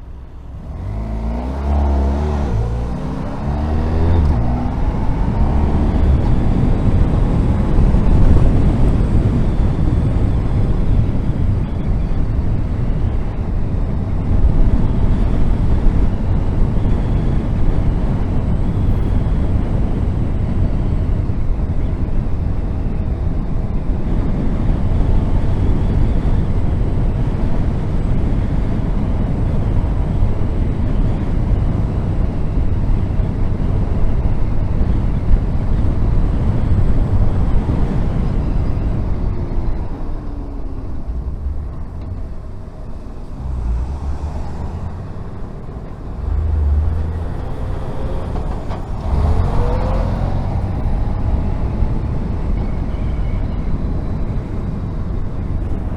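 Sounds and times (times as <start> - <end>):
wind rumble on microphone: 0.0 - 55.9
motorcycle engine running: 0.2 - 19.5.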